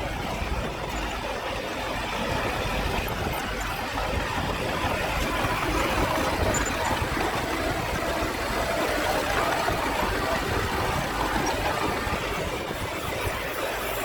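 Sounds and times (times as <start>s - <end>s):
heavy machinery engine running: 0.0s - 14.0s.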